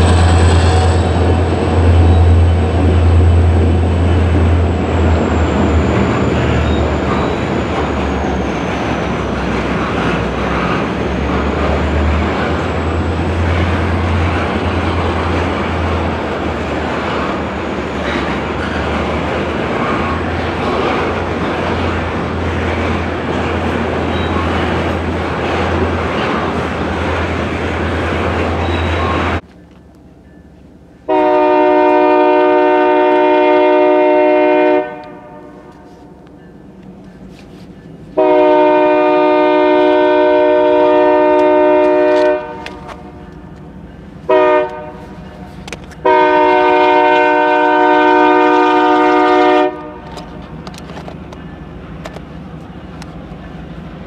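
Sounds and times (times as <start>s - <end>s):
freight train wheels rumbling: 0.0s - 54.0s
faint clicks over rail joints: 44.6s - 46.1s, 49.2s - 53.6s.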